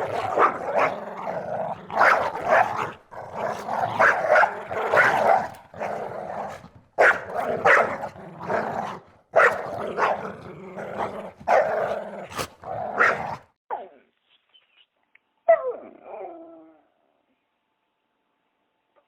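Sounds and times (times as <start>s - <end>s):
dog barking and growling: 0.0s - 14.0s, 15.5s - 16.8s.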